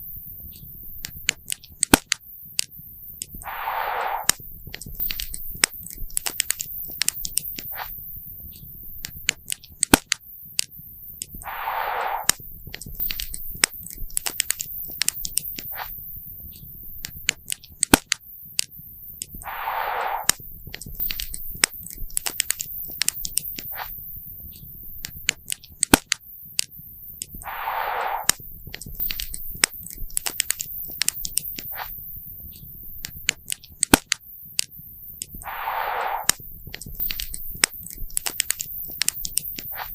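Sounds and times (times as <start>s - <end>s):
hissing: 3.4s - 4.4s, 11.4s - 12.4s, 19.4s - 20.4s, 27.4s - 28.4s, 35.4s - 39.9s.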